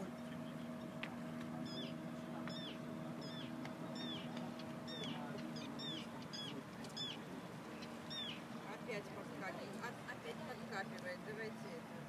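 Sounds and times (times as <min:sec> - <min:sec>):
low hum: 0:00.0 - 0:12.0
bird calling: 0:01.5 - 0:08.7.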